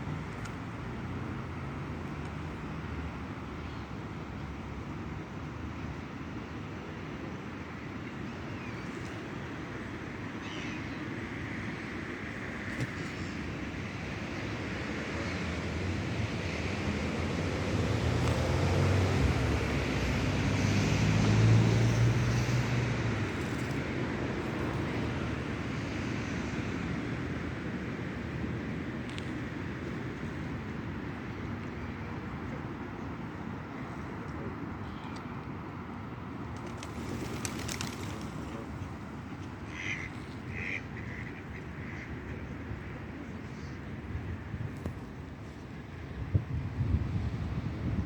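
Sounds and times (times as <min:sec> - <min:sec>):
engine passing by: 0:15.2 - 0:26.8, 0:36.6 - 0:39.0
steady rushing background: 0:36.6 - 0:38.5.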